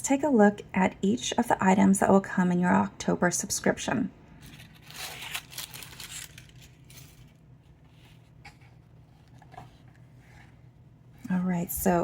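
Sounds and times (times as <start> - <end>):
packaging rustling and crinkling: 4.4 - 10.0.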